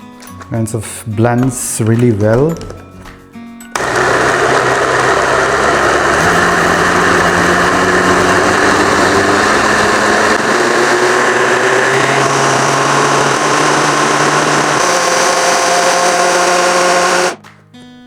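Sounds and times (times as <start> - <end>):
electric blender motor running: 3.8 - 17.4.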